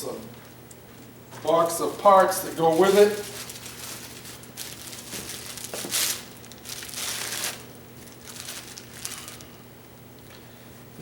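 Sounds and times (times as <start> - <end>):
packing wrapping crinkling: 1.0 - 9.6.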